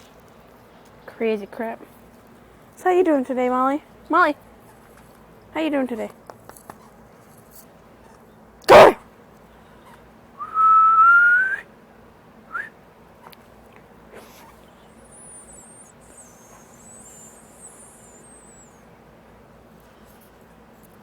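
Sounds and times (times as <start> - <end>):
person whistling: 10.4 - 11.6, 12.5 - 12.7
faint bird twittering: 14.2 - 18.9.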